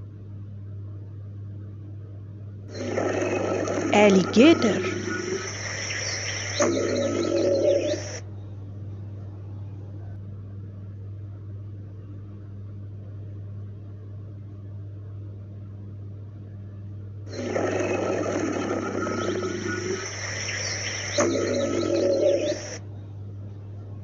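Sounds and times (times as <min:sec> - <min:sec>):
faint steady hum: 0:00.0 - 0:24.0
alligator call: 0:02.8 - 0:08.2, 0:17.3 - 0:22.8
birds chirping: 0:02.8 - 0:08.2, 0:17.3 - 0:22.8.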